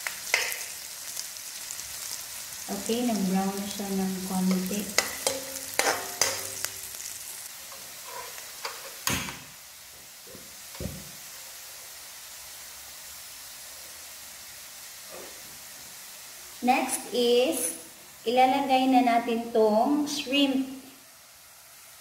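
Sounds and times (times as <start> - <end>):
onion and garlic sizzling: 0.0 - 22.0
metal spatula scraping pan: 4.5 - 6.7, 7.7 - 9.0.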